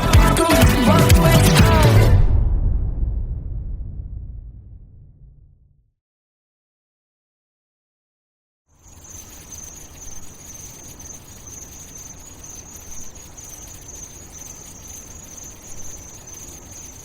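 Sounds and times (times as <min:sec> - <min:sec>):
low rumble: 0:01.1 - 0:05.9
high-pitched chirring: 0:08.8 - 0:17.0.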